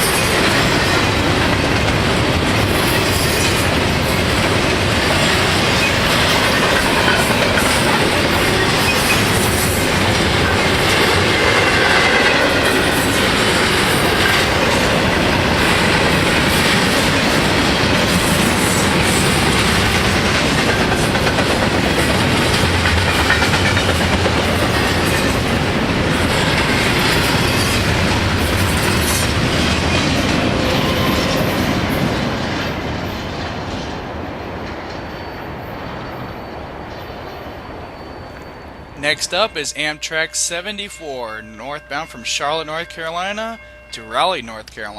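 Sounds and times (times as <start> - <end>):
train wheels clattering over rail joints: 0.0 - 35.1
faint wheel squeal: 35.1 - 39.0.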